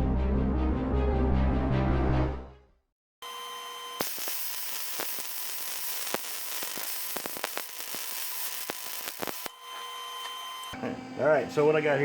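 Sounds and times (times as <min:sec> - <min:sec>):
welder arc crackling and sizzling: 0:04.0 - 0:09.5.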